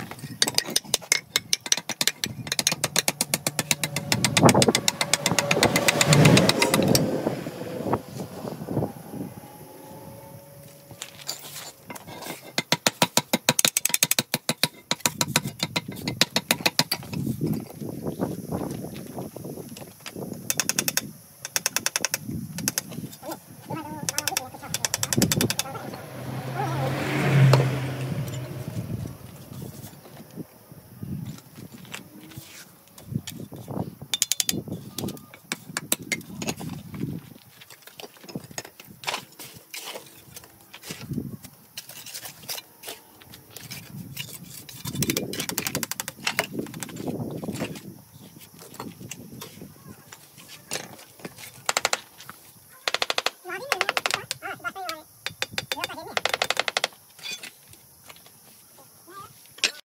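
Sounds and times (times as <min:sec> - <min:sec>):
scattered knocks: 0:00.4 - 0:07.1, 0:24.0 - 0:25.7.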